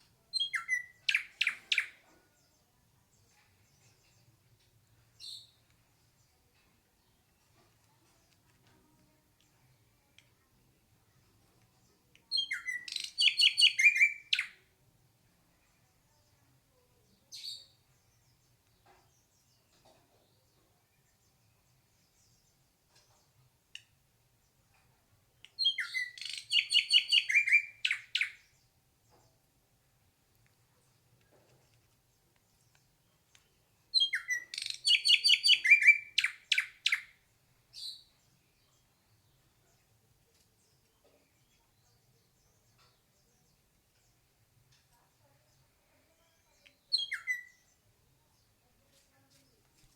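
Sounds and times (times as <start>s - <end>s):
bird singing whistled notes: 0.3s - 2.0s, 12.3s - 14.6s, 25.6s - 28.5s, 33.9s - 37.2s, 46.5s - 47.8s
sharp downward-swept bird calls: 12.5s - 14.5s, 25.6s - 28.4s, 34.0s - 37.1s.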